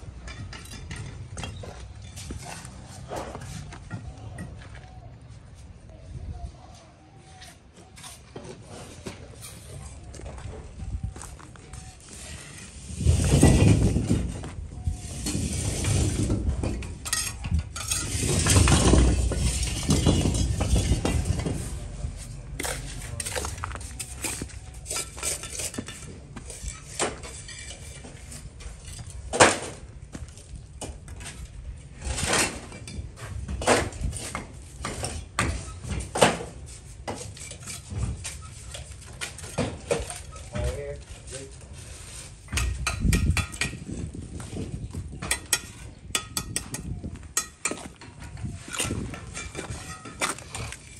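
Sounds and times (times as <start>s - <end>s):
scraping noise: 11.6s - 17.0s, 17.8s - 29.2s
tools clinking on building material: 16.7s - 21.6s, 42.5s - 43.9s, 45.2s - 50.9s.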